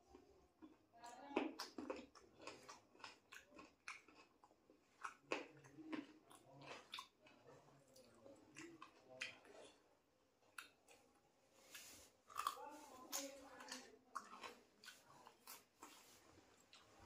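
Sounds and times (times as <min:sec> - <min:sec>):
person chewing and lip-smacking: 0:00.1 - 0:09.8, 0:10.4 - 0:17.0.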